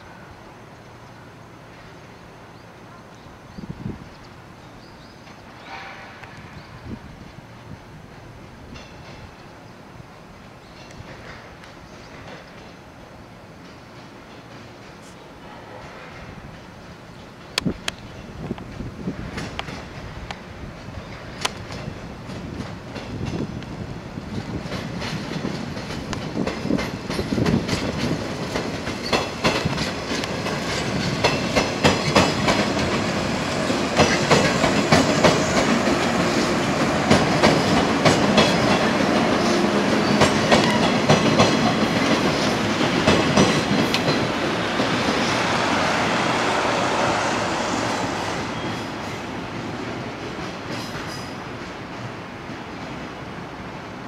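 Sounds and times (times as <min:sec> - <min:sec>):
train running noise: 0:00.0 - 0:54.0
wheels clacking over rail joints: 0:08.5 - 0:09.5, 0:13.6 - 0:15.2, 0:15.8 - 0:53.2.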